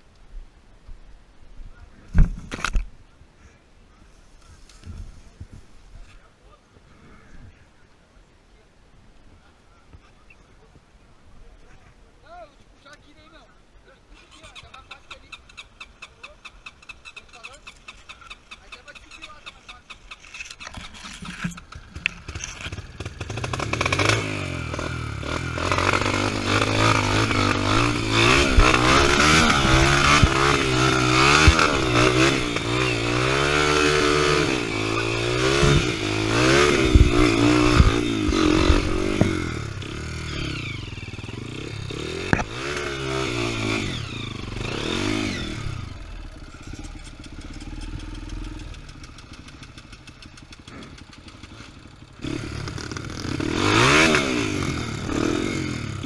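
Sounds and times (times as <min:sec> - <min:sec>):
dirt bike engine revving: 0:14.2 - 0:56.0.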